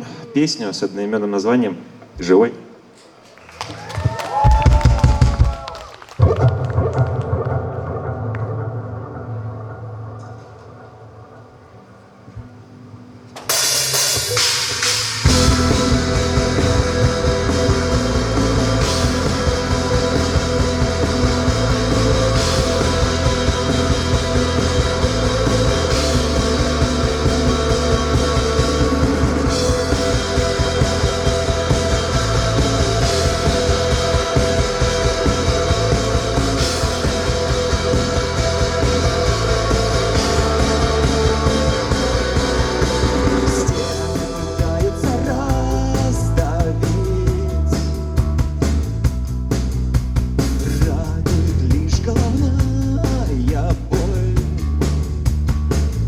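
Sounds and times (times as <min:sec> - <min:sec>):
rock band playing live: 0:13.3 - 0:56.0.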